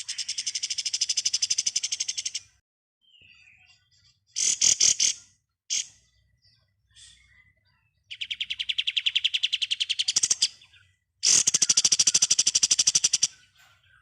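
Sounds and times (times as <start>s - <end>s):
songbird rapid rattling trill: 0.0s - 2.5s, 4.3s - 6.0s, 8.1s - 13.6s.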